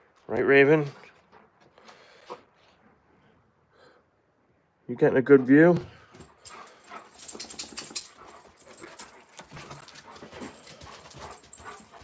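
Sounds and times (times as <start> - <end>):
dog making soft sounds: 6.5 - 12.0.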